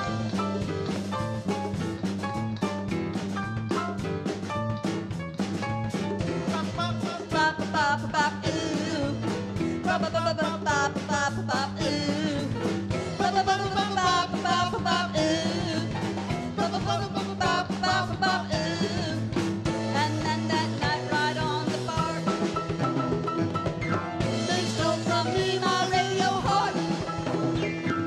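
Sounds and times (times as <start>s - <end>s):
drums and percussion beat: 0.0s - 28.0s
keyboard: 0.0s - 28.0s
person singing: 6.4s - 22.5s, 24.2s - 27.4s.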